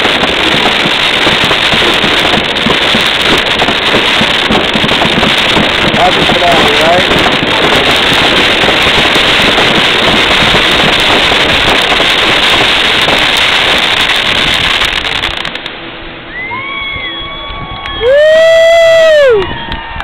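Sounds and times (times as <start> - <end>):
fireworks bursting and crackling: 0.0 - 20.0.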